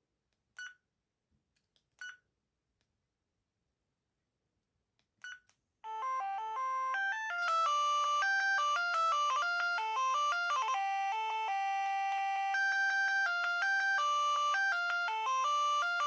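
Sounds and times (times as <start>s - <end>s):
electronic ringtone melody: 5.9s - 16.0s.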